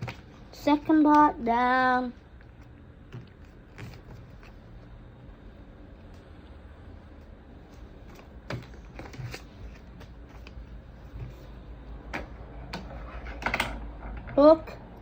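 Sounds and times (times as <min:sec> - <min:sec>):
steady low hum: 0:00.0 - 0:15.0
paper rustling and crinkling: 0:07.7 - 0:11.5.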